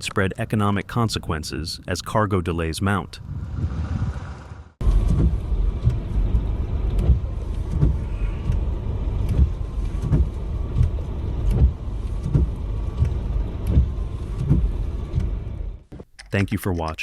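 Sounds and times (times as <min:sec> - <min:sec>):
motor vehicle rumbling: 0:03.1 - 0:15.9.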